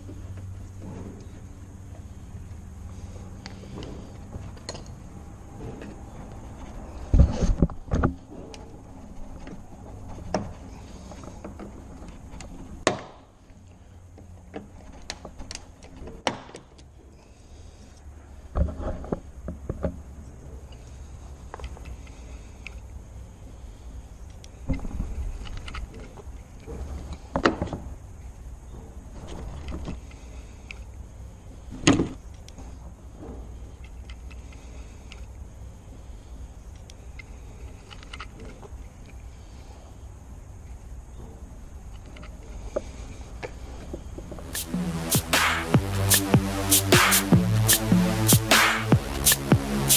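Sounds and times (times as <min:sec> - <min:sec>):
low thumps: 0:44.4 - 0:49.9.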